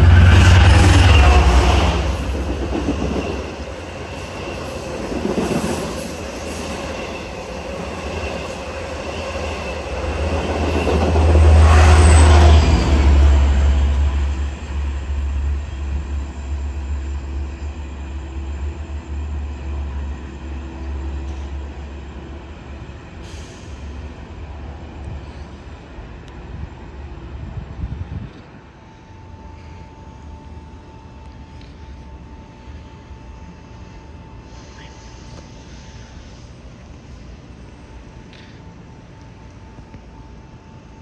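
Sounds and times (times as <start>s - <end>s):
train wheels rumbling on rails: 0.0s - 32.4s.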